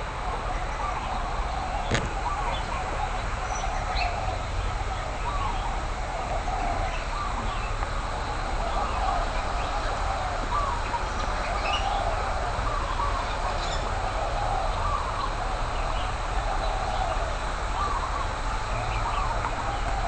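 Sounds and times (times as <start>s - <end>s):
many birds chirping: 0.0s - 20.0s.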